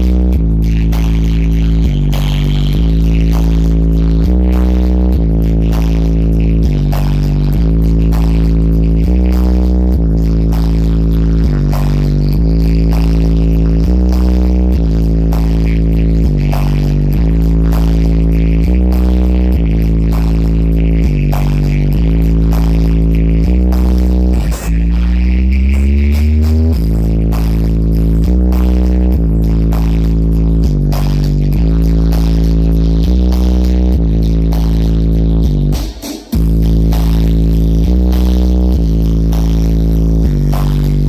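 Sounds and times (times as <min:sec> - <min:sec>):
electronic music with heavy bass: 0:00.0 - 0:41.0.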